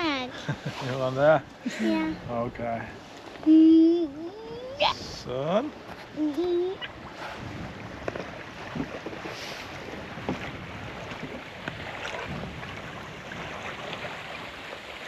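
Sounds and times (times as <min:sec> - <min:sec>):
water rushing along hull: 0:00.0 - 0:15.0
wind buffeting microphone: 0:04.4 - 0:15.0.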